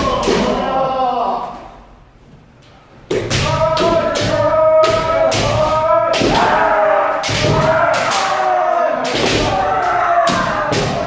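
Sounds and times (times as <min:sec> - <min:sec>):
kiai shouts: 0:03.3 - 0:11.0.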